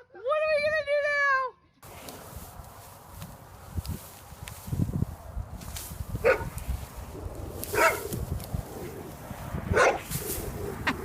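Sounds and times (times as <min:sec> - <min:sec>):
dog barking: 0:06.2 - 0:06.5, 0:07.7 - 0:08.1, 0:09.7 - 0:10.1.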